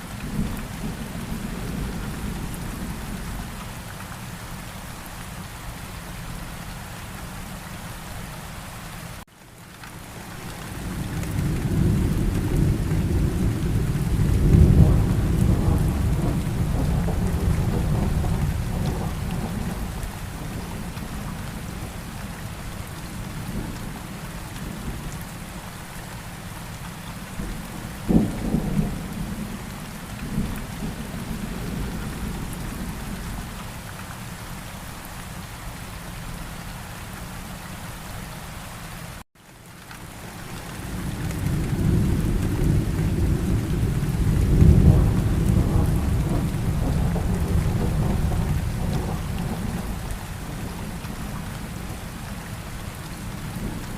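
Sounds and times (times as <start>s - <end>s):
steady rain: 0.0s - 53.9s
low rolling thunder rumble: 10.7s - 25.1s, 27.4s - 33.6s, 40.8s - 53.9s
thunder crack: 14.1s - 19.8s, 41.5s - 49.9s.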